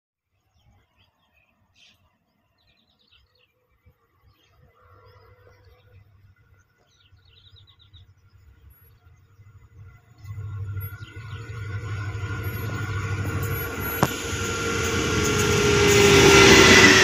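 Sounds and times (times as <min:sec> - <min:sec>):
low rumble: 0:09.2 - 0:17.0.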